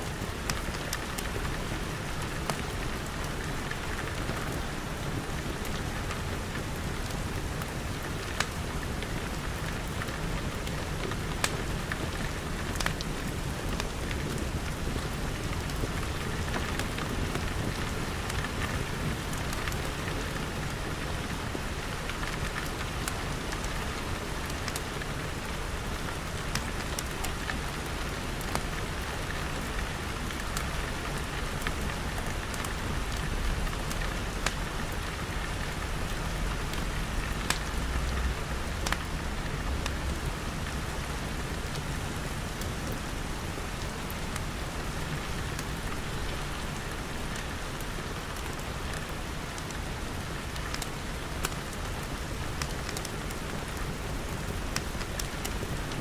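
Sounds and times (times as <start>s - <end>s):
rain pattering on glass: 0.1s - 56.0s.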